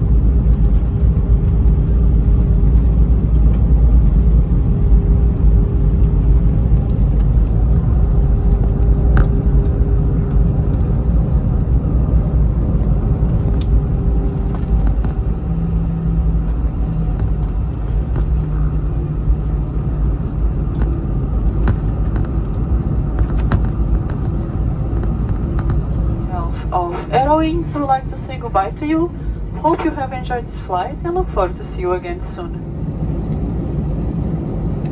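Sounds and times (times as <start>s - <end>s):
aircraft cabin rumble: 0.0s - 34.9s
jet engines humming: 0.0s - 34.9s
faint clicks and rattles: 0.4s - 26.3s.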